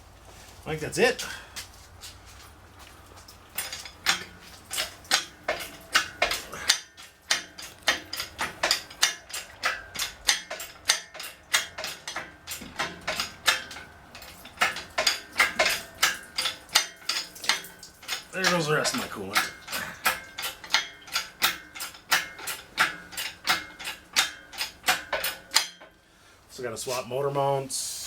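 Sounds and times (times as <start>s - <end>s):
metallic clicks and clinks: 3.6s - 25.9s.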